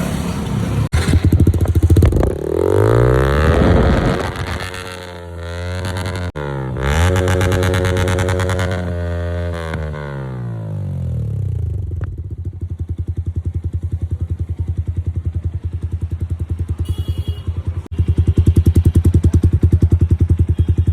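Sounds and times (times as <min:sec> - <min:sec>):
motorcycle engine idling: 0:05.1 - 0:20.9.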